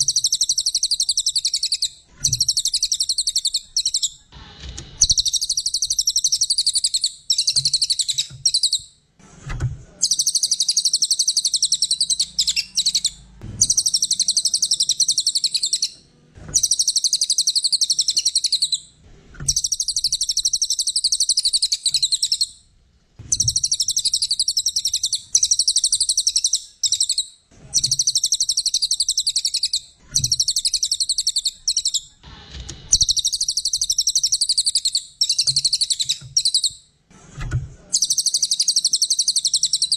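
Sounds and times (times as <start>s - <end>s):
songbird chattering trills: 10.0s - 16.0s, 16.6s - 18.8s.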